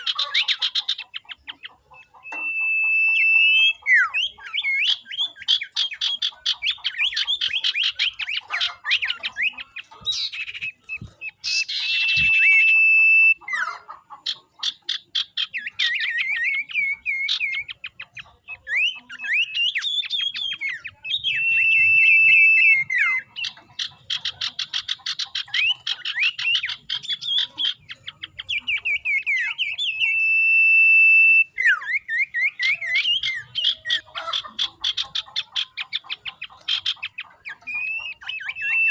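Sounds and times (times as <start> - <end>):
bird chattering notes: 0.0 - 38.9
bird long steady whistle: 2.2 - 4.2, 11.7 - 13.4, 21.2 - 22.9, 29.9 - 33.1.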